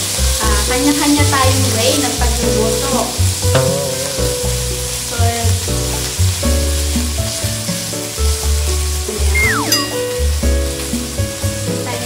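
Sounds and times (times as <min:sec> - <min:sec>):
chicken sizzling in hot oil: 0:00.0 - 0:12.0
music with heavy bass: 0:03.5 - 0:05.8.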